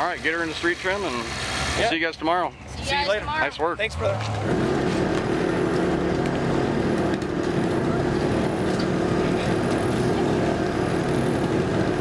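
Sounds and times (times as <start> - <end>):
car engine running: 2.6 - 12.0.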